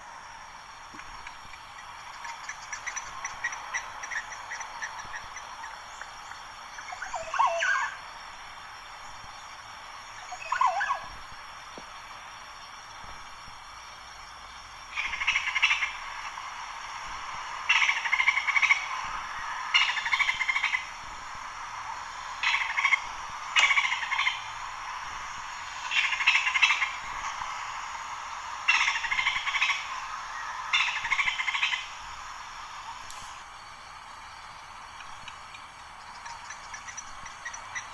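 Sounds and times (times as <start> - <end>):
background hiss: 0.0 - 37.9
pulsed trilled animal call: 6.8 - 8.1.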